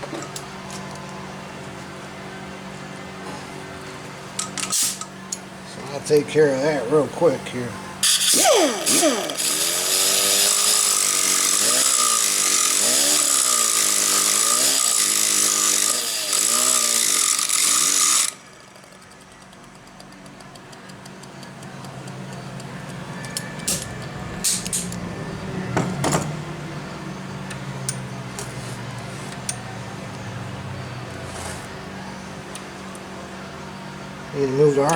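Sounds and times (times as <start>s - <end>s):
power grinder grinding metal: 8.0s - 19.0s.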